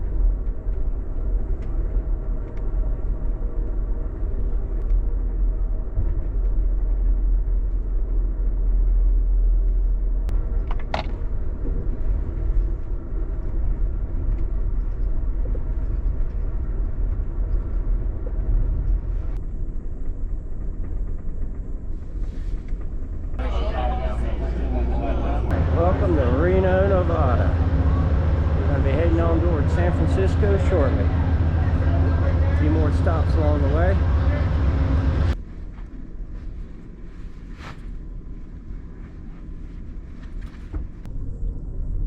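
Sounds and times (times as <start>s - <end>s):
train rumbling in motion: 0.0s - 42.0s
high-pitched squeal: 23.4s - 35.4s.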